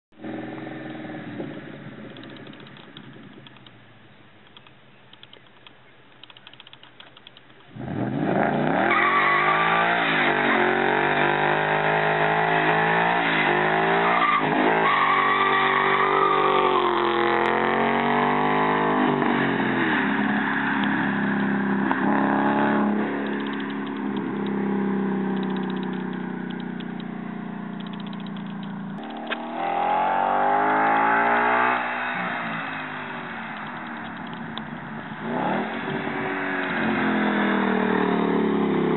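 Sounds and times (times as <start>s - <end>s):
car engine revving hard: 7.8s - 26.4s, 29.4s - 34.0s, 35.2s - 38.9s.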